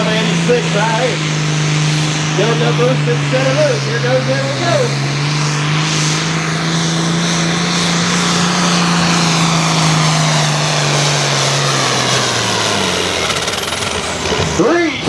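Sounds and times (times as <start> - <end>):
tractor diesel engine running flat out: 0.0 - 15.0.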